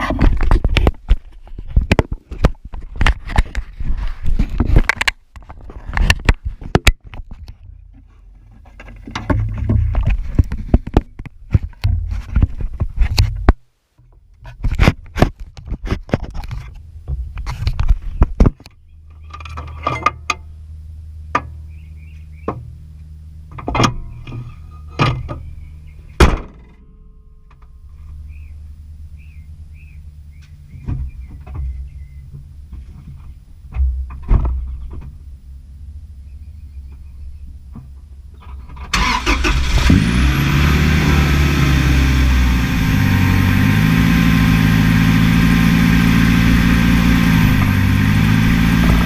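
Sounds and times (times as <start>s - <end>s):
car engine idling: 18.8s - 49.0s
sharp knocks and thunks: 26.2s - 26.8s, 30.7s - 35.2s.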